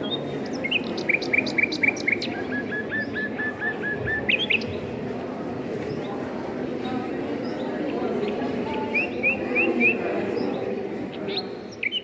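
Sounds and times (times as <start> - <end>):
songbird singing: 0.0 - 4.8, 7.5 - 12.0.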